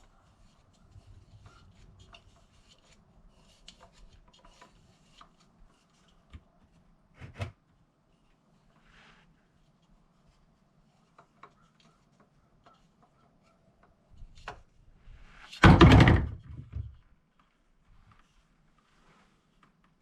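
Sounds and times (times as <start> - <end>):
loud clattering knock: 15.6 - 16.9.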